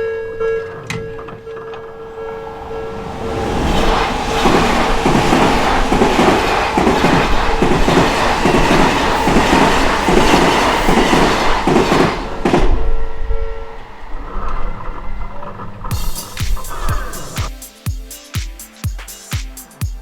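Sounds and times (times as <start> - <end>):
train wheels clattering over rail joints: 3.6 - 13.2.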